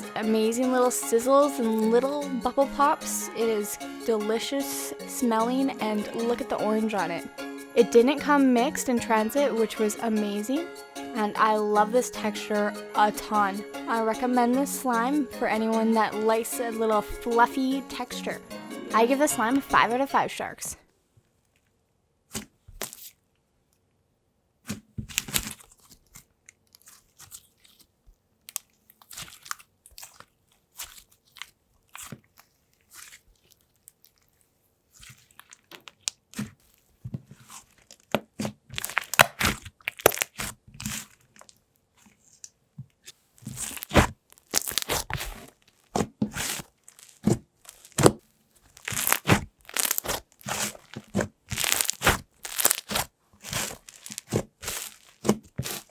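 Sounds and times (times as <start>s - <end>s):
slime crackling and popping: 24.7s - 27.8s, 28.4s - 36.6s, 37.4s - 41.6s, 43.4s - 55.9s.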